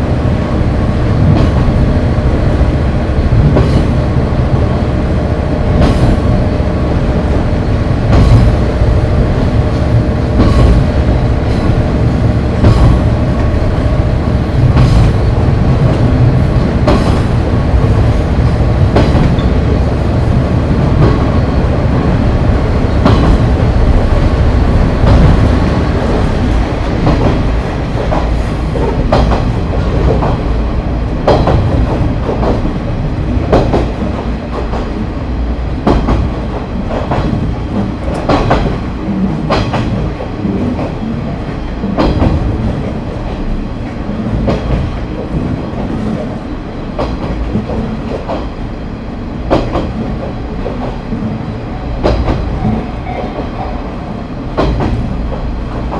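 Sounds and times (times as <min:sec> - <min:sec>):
railcar engine low rumble: 0:00.0 - 0:55.9
wheels clacking over rail joints: 0:14.5 - 0:19.8, 0:35.8 - 0:48.6.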